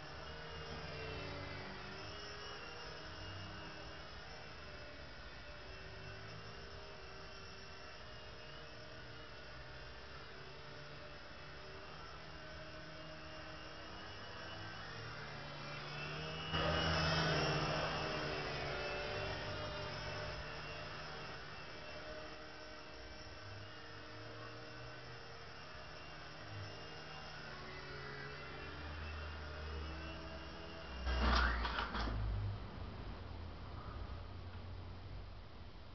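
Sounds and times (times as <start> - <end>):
toy helicopter rotors whirring: 0.0 - 32.1.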